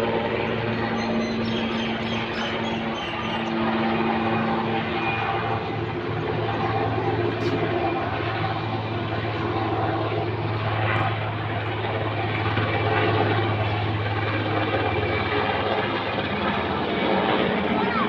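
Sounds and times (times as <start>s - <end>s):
helicopters flying overhead: 0.0s - 18.0s.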